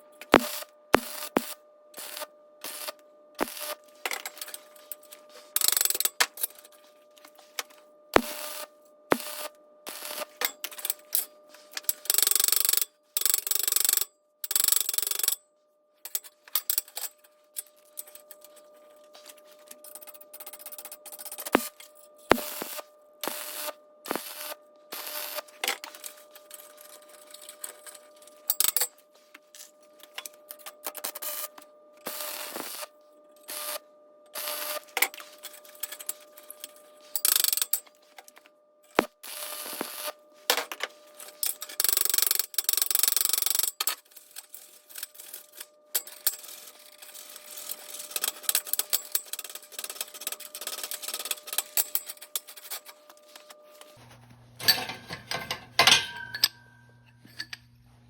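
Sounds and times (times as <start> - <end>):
metal parts clinking: 54.6 - 57.6.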